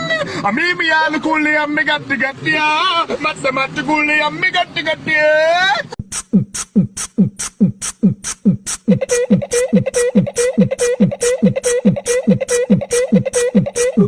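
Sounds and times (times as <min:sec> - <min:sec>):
steady buzzing tone: 0:06.0 - 0:14.0.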